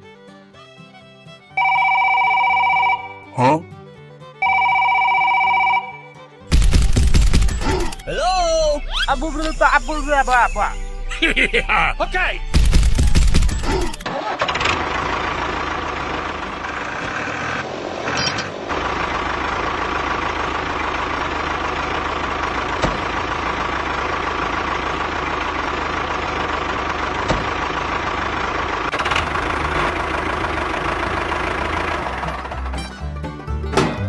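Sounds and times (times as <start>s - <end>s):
truck motor running: 4.4s - 34.0s
loud burst: 6.5s - 17.6s.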